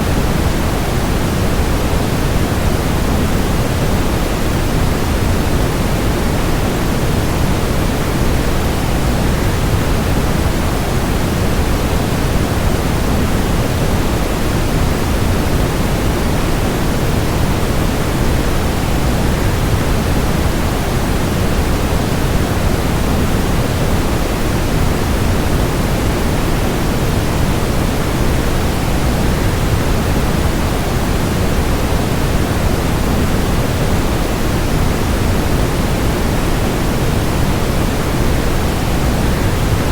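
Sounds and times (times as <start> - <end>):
rushing water white noise: 0.0 - 39.9.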